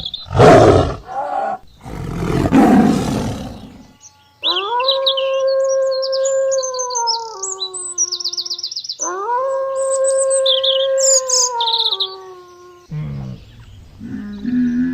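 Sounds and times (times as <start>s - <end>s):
big cat roaring: 0.0s - 3.9s
birds chirping: 0.0s - 9.2s
canine howling: 0.3s - 8.0s, 9.0s - 12.6s.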